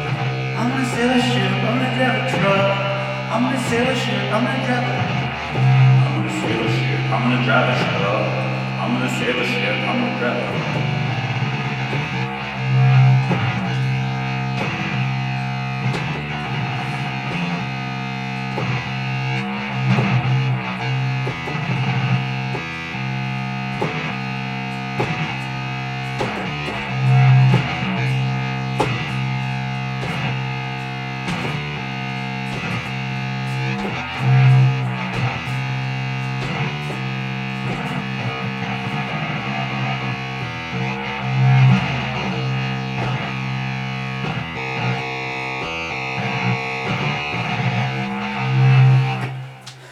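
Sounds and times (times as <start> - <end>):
bass and drums groove: 0.0 - 49.9
distorted electric guitar: 0.0 - 49.9.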